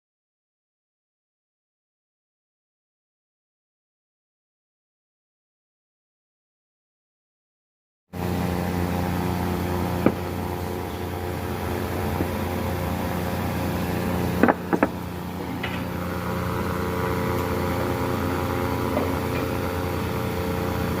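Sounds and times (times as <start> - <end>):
woodworking machine motor humming: 8.2 - 21.0
sharp knocks: 14.4 - 15.0.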